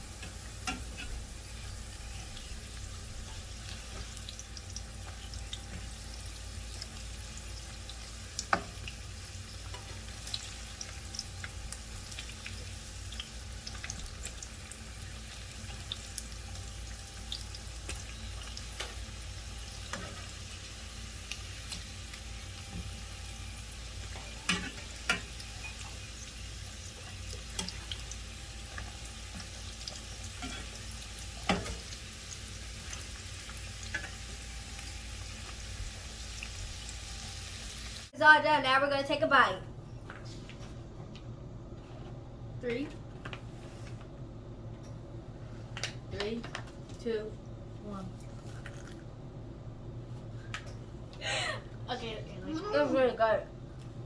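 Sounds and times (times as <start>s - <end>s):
food frying with sizzle and pops: 0.0s - 38.2s.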